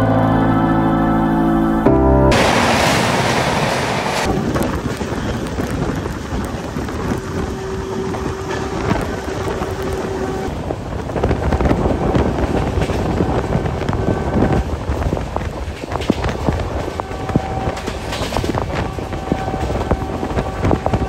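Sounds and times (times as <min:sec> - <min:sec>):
train rumbling and rattling: 0:02.3 - 0:21.0
wind on microphone: 0:04.2 - 0:21.0.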